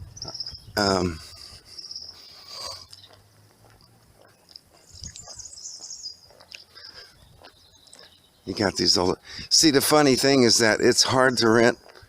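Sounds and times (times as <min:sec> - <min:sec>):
high-pitched chirping: 0:00.0 - 0:03.2, 0:04.7 - 0:08.6.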